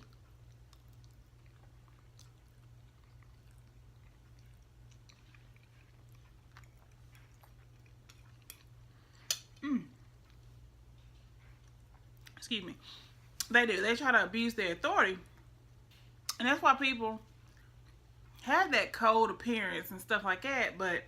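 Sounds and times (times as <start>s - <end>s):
chewing spaghetti: 0.0s - 12.4s.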